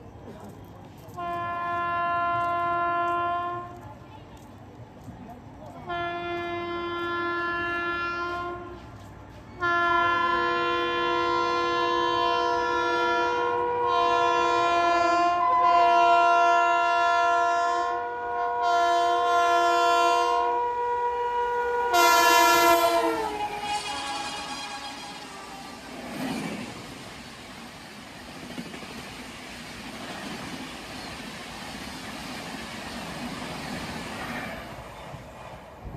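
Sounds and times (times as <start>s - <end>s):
passing train rushing: 0.0s - 35.9s
electric locomotive horn: 1.2s - 3.8s, 5.9s - 8.9s, 9.6s - 26.2s.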